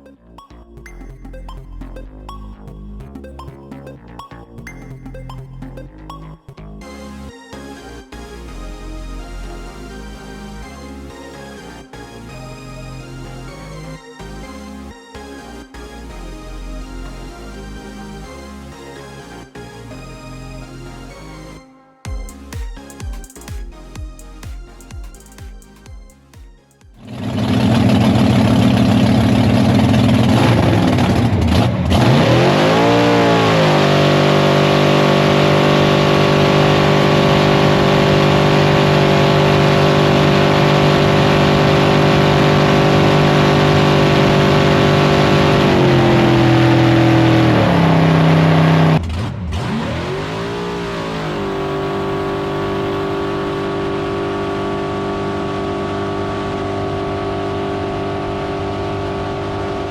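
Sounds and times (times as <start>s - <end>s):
drag boat engine running hard: 27.0s - 59.9s.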